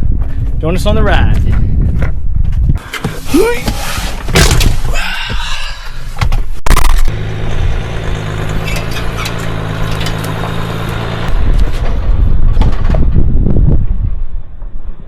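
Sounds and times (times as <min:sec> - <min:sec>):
car engine starting and idling: 0:06.8 - 0:12.2.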